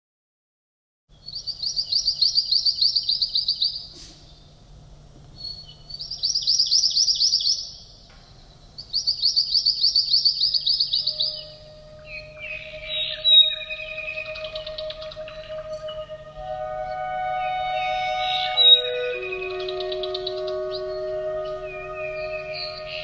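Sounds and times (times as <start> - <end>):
songbird trilling: 5.4 - 7.8, 8.4 - 23.0.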